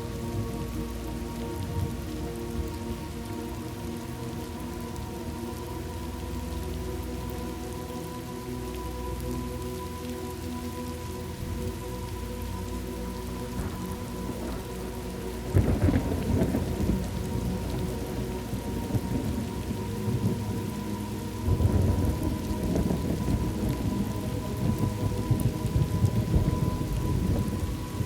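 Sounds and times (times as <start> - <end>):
steady rain: 0.0 - 28.0
thunder rumbling: 13.5 - 20.8, 21.4 - 28.0.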